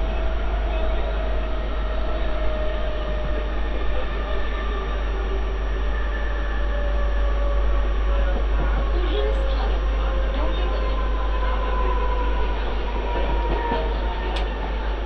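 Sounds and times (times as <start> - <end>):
electric train rumbling at speed: 0.0 - 15.0
faint whine: 0.0 - 15.0.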